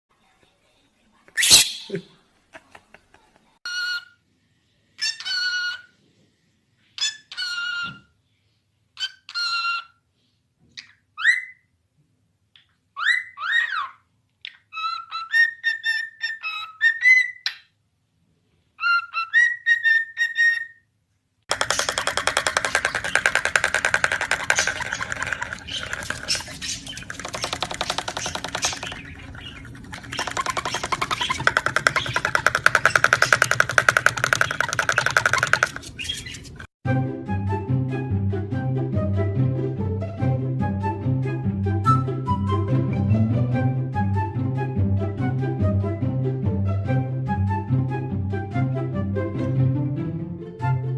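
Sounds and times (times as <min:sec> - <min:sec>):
bird calls: 0:21.5 - 0:36.7
music: 0:36.8 - 0:50.9.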